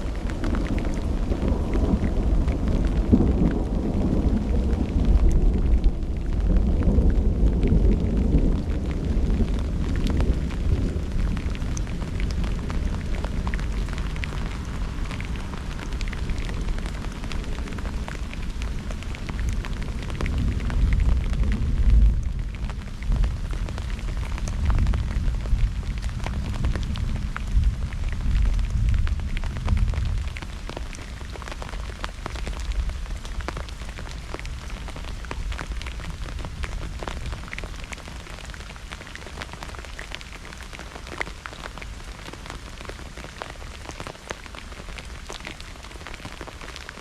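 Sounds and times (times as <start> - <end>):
thunder rumbling: 0.0 - 30.6
raindrops ticking close by: 0.0 - 47.0
steady downpour: 0.0 - 47.0.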